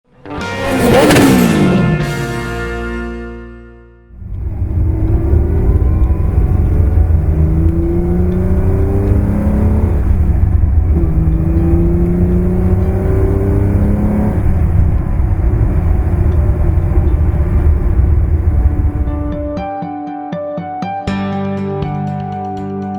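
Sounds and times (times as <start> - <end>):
car engine pulling under load: 4.2 - 19.6.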